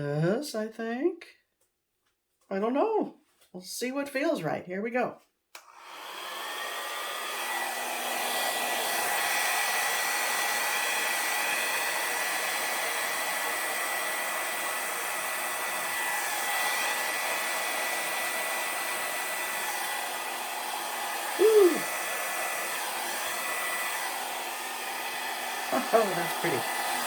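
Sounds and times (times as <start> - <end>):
hair dryer blowing air: 5.6 - 27.0.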